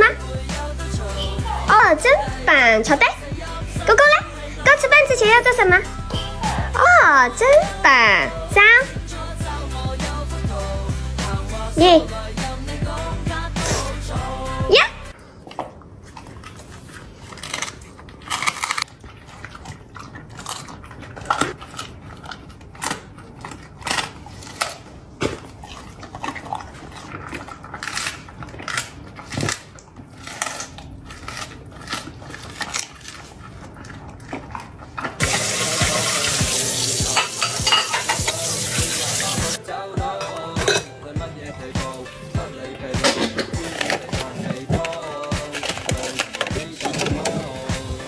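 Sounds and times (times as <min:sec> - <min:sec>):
water running from a tap: 0:35.2 - 0:39.6
dishes and utensils clinking: 0:35.2 - 0:41.2, 0:41.8 - 0:48.0.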